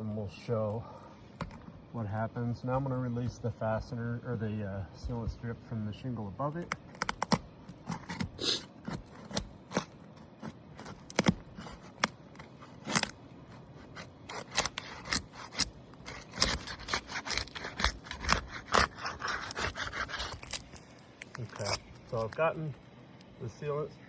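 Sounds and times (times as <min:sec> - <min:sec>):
shingle sealant strip ripping: 0:06.6 - 0:22.4.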